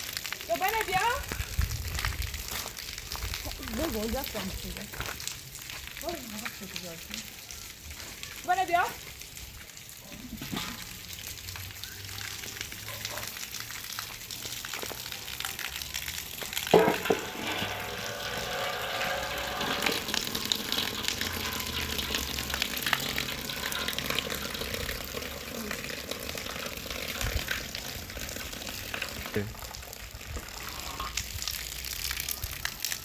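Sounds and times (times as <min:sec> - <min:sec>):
food sizzling in a pan: 0:14.0 - 0:29.5.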